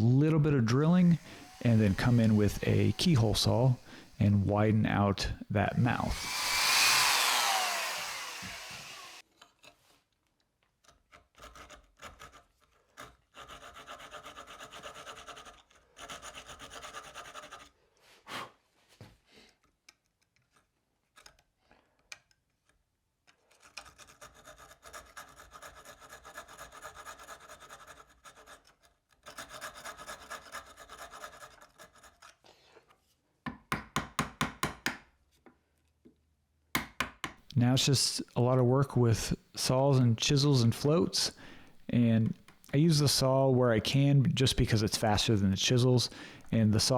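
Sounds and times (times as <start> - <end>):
keyhole saw cutting wood: 0.0 - 9.2, 39.8 - 43.0, 45.0 - 46.9.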